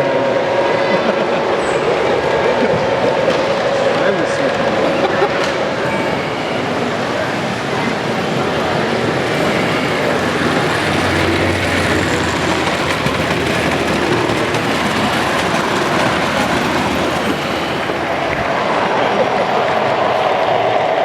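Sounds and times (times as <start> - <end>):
model train rolling on track: 0.0 - 21.0.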